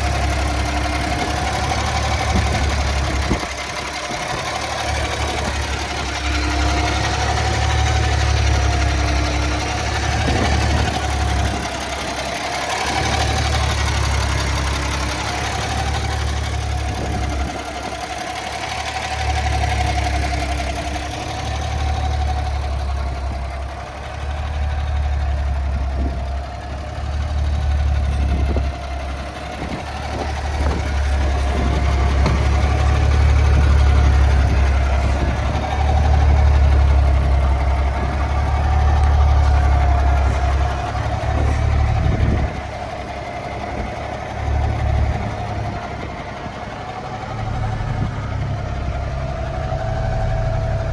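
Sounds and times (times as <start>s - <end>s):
truck engine idling rumble: 0.0s - 50.9s.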